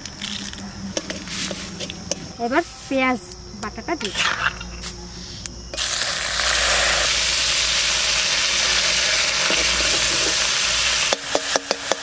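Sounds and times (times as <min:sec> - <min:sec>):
onion paste sizzling in oil: 0:01.0 - 0:02.9, 0:05.7 - 0:12.0
spatula knocking metal pan: 0:11.1 - 0:12.0.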